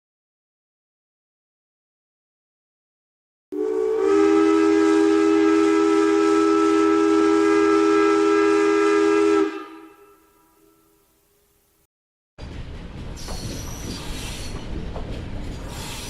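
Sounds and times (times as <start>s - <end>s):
steam locomotive whistle: 3.5s - 11.0s
steam hissing: 15.4s - 16.0s.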